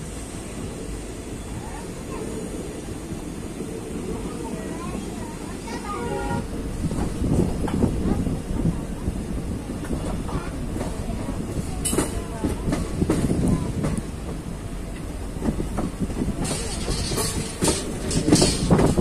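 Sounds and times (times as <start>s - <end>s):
train wheels rumbling on rails: 0.0s - 19.0s
wheels clicking over rail joints: 9.8s - 19.0s.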